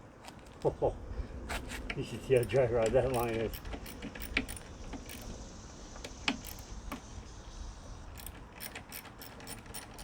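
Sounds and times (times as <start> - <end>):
metallic clicks of hand tools: 2.4 - 5.3.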